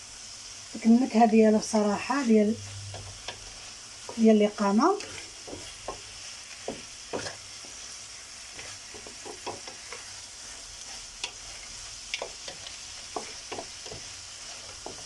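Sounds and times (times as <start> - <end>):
food sizzling in a pan: 0.0 - 15.0
spoon scraping and clicking on pan: 8.6 - 10.1, 11.2 - 15.0.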